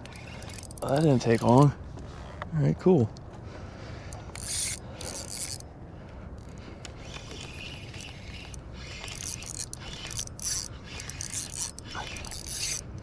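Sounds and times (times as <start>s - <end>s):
fishing reel whirring: 0.0s - 1.7s, 4.0s - 5.7s, 6.4s - 13.0s
wind and water rumble: 0.0s - 13.0s.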